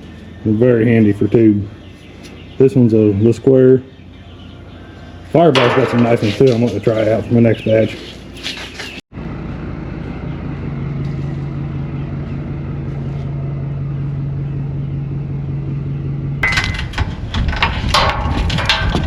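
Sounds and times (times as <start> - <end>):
loud clanking and knocking: 5.5 - 6.7, 16.4 - 19.0
engine running: 9.1 - 19.0.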